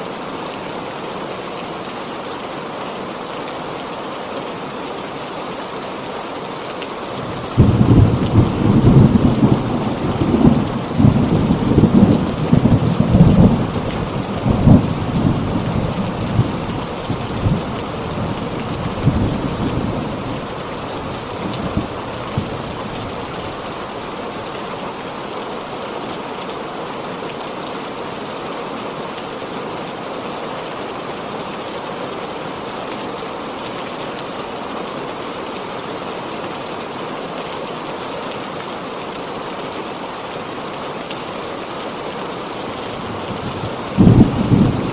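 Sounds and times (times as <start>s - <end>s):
heavy rain falling: 0.0s - 44.9s
rolling thunder: 7.3s - 17.7s, 43.0s - 44.9s.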